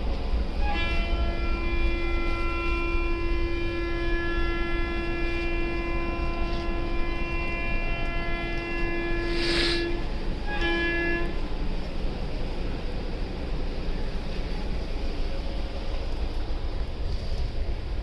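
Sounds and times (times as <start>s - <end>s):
train rumbling: 0.0s - 18.0s
train horn blast: 0.5s - 11.8s.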